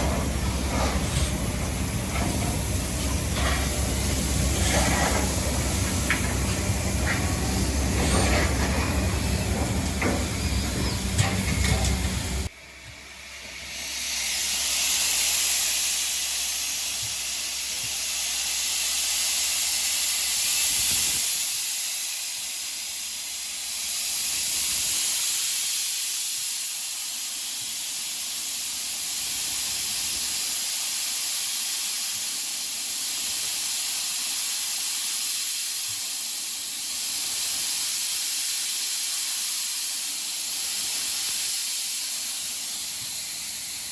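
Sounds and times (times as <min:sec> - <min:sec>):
low rumble with hum: 0:00.0 - 0:13.8
steam hissing: 0:00.0 - 0:43.9.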